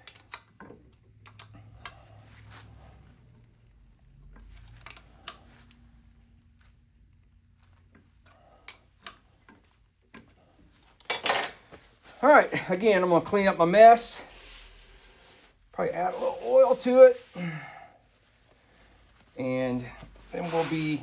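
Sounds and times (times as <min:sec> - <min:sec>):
tools and metal parts clicking: 0:00.0 - 0:02.0, 0:04.6 - 0:05.4, 0:10.1 - 0:11.6.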